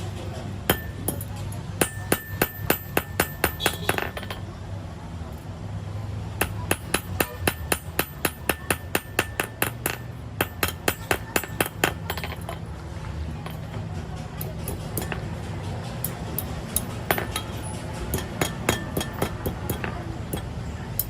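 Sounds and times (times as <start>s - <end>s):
hammer blows on metal: 0.7s - 4.4s.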